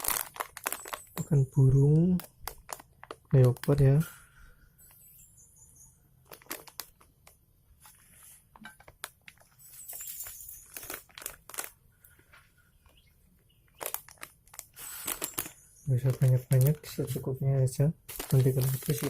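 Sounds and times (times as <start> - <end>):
plastic packet crinkling: 0.0 - 4.0, 6.2 - 7.4, 8.6 - 17.3, 18.0 - 19.0.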